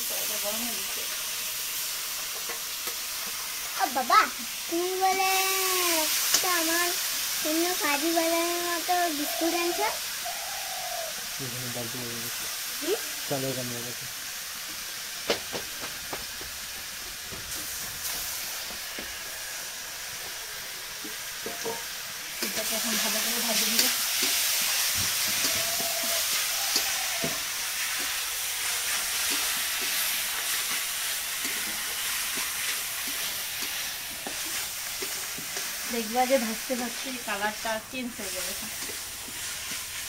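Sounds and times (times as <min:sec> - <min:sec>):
sizzling hiss in wok: 0:00.0 - 0:40.0
spatula scraping and knocking pan: 0:21.0 - 0:22.7, 0:23.6 - 0:37.1.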